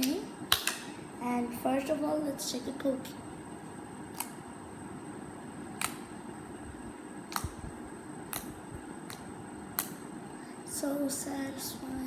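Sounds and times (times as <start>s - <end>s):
steady background hiss: 0.0s - 12.0s
slime clicks: 5.8s - 6.1s, 7.3s - 7.6s, 8.3s - 10.0s.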